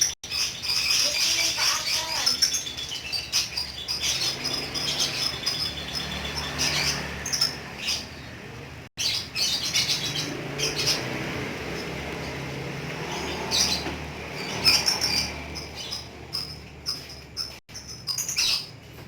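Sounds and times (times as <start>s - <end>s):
lovebird chattering: 0.0s - 8.3s, 13.1s - 18.8s.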